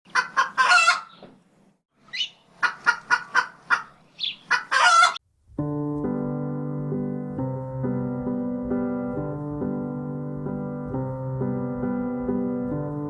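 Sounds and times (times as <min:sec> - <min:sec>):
rooster crowing: 0:04.5 - 0:05.2
soft piano music: 0:05.5 - 0:13.0.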